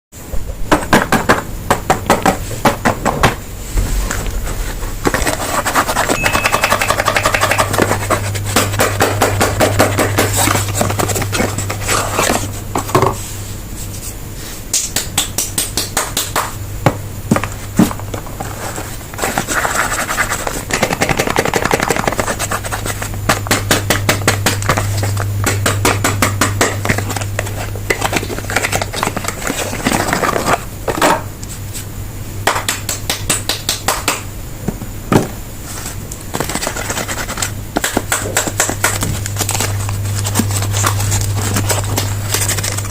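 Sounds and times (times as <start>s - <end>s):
low hum: 3.4s - 14.4s, 22.6s - 30.0s, 38.5s - 42.9s.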